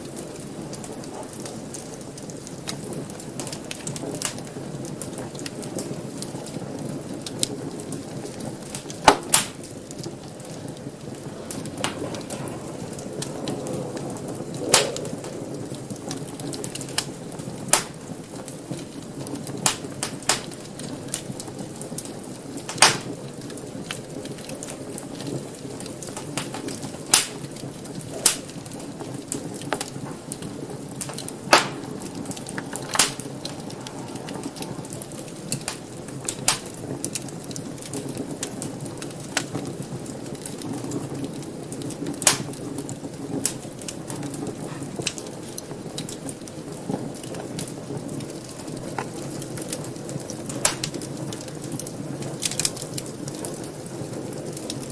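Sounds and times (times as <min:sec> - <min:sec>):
fire crackling and popping: 0:00.0 - 0:54.9
fire low rush: 0:08.0 - 0:18.9, 0:27.5 - 0:37.9.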